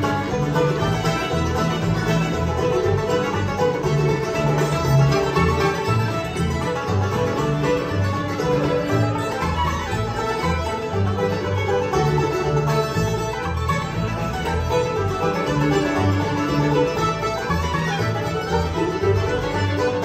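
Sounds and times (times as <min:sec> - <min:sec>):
banjo picking: 0:00.0 - 0:20.0
guitar: 0:00.0 - 0:20.0
low bass notes: 0:00.0 - 0:20.0.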